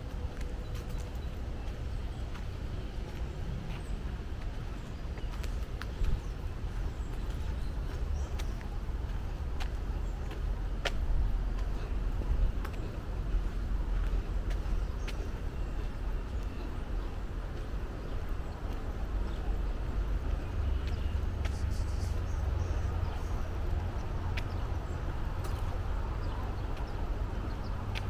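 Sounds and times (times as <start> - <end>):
footsteps on path: 0.0 - 28.0.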